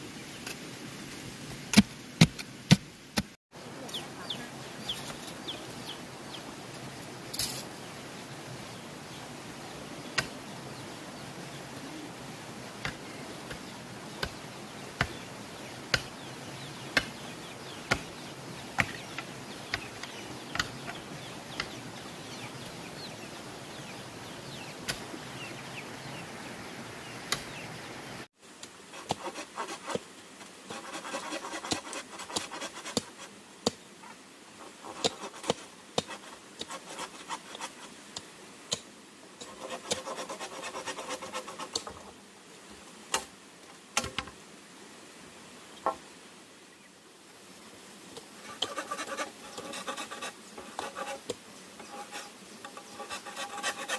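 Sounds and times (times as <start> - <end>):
insect buzz: 28.9 - 53.9
tapping and scraping: 48.4 - 53.9.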